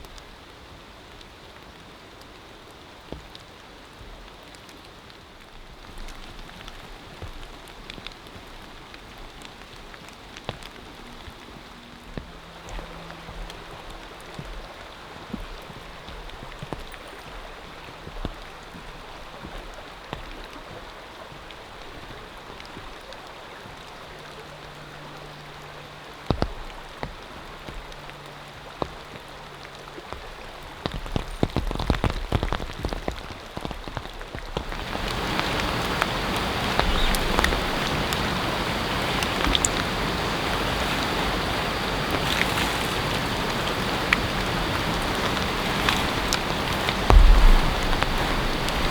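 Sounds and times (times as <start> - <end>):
rain falling: 0.0 - 48.9
drops ticking close by: 45.0 - 48.9.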